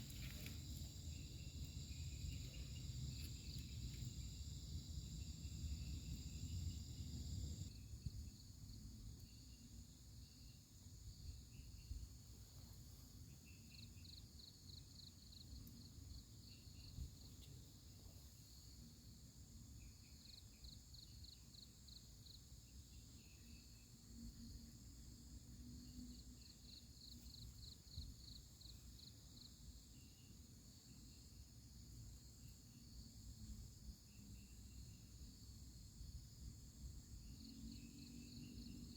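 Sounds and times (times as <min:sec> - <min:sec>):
high-pitched insect drone: 0:00.0 - 0:07.7
cricket-like chirping: 0:00.0 - 0:38.9.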